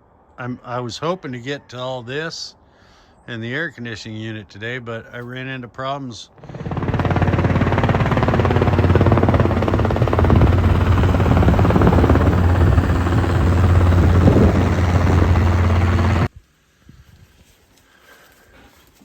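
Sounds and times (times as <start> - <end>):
small generator engine running: 6.4 - 16.3.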